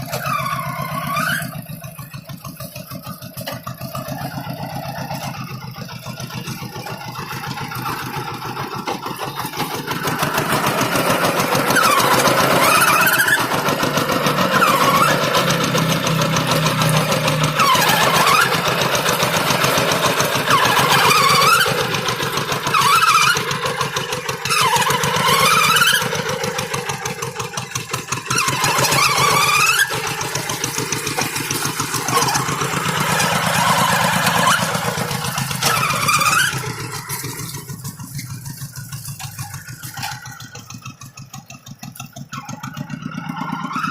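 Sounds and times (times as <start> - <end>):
high gliding squeal: 0.0 - 3.2, 3.8 - 13.6, 31.2 - 43.9
hand tractor engine under load: 0.0 - 43.9.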